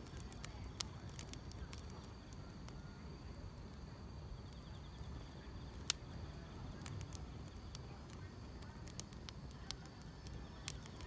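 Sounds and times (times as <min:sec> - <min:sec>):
crickets trilling: 0:00.0 - 0:11.0
wood fire crackling: 0:00.0 - 0:11.0
sharp pop from fire: 0:05.7 - 0:06.0.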